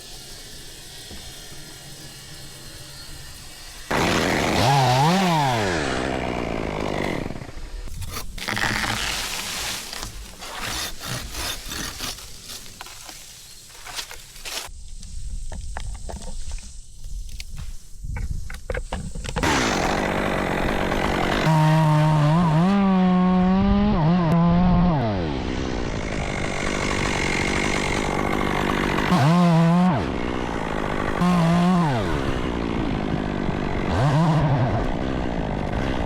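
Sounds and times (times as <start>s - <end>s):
chainsaw revving: 3.9s - 12.6s, 19.4s - 36.0s.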